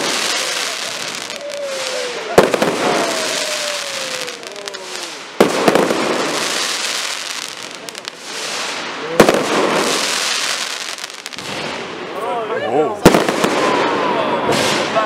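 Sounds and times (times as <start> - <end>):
falling firework whistle: 0.0 - 7.4
crackling firework sparks: 0.0 - 12.2, 13.0 - 15.0
firework bangs: 0.0 - 12.2, 13.0 - 15.0.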